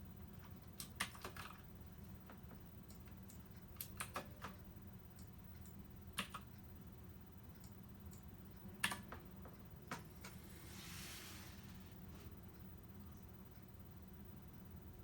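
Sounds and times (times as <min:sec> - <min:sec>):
faint low hum: 0:00.0 - 0:15.0
computer input clicks: 0:00.7 - 0:01.6, 0:02.9 - 0:04.6, 0:05.2 - 0:06.5, 0:07.6 - 0:09.2.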